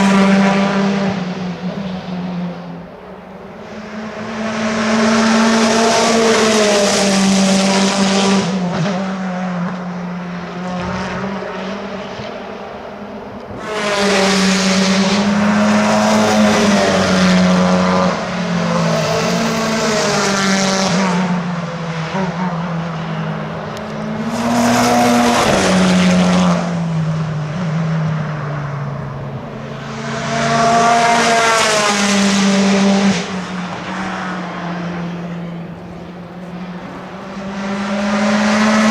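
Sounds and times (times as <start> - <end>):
racing cars passing at speed: 0.0 - 38.9
distant engine noise: 10.3 - 38.9.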